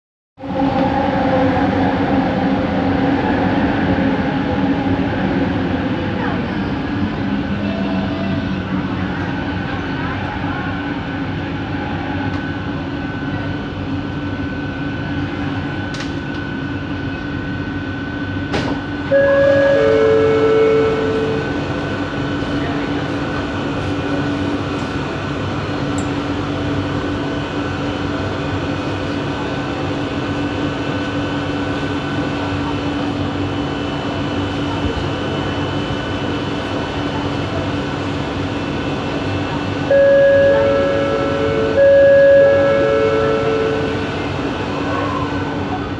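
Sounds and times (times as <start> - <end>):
train running rumble: 0.4 - 45.9
train motor whine: 18.5 - 22.4, 39.5 - 45.4.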